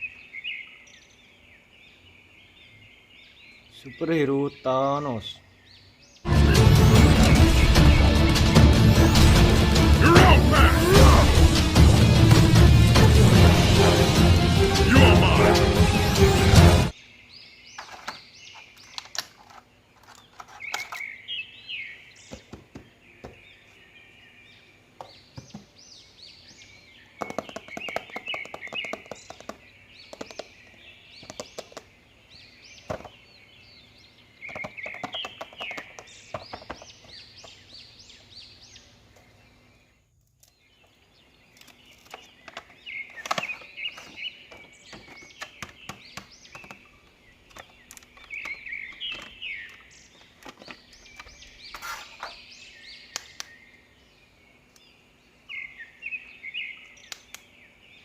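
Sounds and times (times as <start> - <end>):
small birds chirping: 0.0 - 12.6, 16.9 - 58.0
sharp clicks and knocks: 27.2 - 30.6, 31.2 - 31.9, 34.4 - 37.6.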